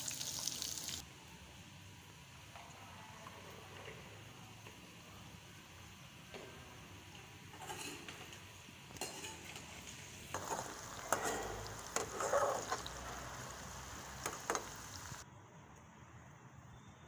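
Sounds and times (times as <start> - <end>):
potatoes sizzling in oil: 0.0 - 1.0, 7.4 - 15.2
metal spoon scraping pan: 7.5 - 8.2, 9.0 - 14.7.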